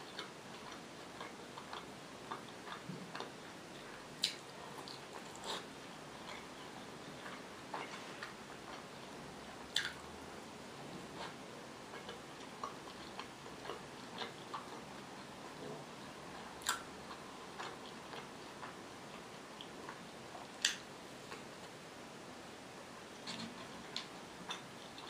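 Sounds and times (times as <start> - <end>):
close chewing: 0.0 - 9.1, 11.1 - 15.3, 15.9 - 21.4
faint steady hiss: 0.0 - 25.0.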